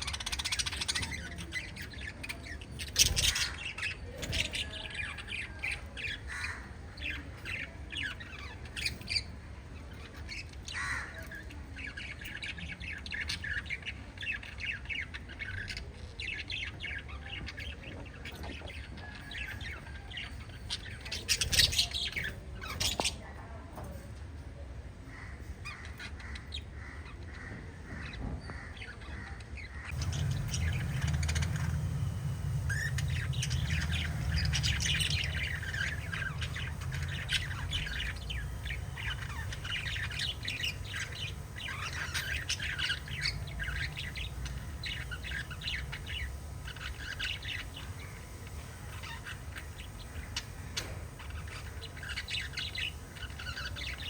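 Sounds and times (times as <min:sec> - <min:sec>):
budgerigars chirping and chattering: 0:00.0 - 0:23.9, 0:25.0 - 0:54.0
steady low rumble: 0:29.9 - 0:54.0.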